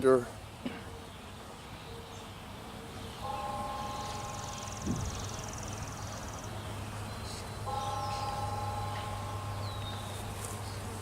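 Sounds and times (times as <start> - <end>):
faint bird chirps: 3.1 - 6.6, 7.2 - 10.8
honeybees buzzing: 3.2 - 11.0.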